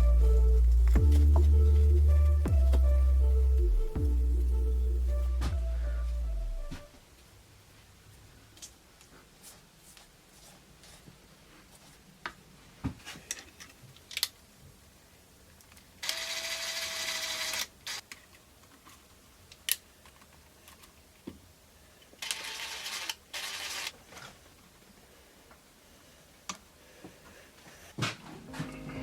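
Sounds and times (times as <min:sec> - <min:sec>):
small motorised tool whirring: 0:16.0 - 0:18.0.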